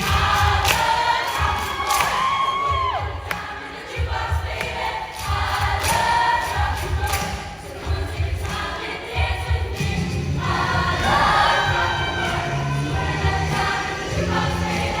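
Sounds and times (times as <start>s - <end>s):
choir singing a rock song: 0.0s - 15.0s
loud band accompaniment: 9.5s - 15.0s.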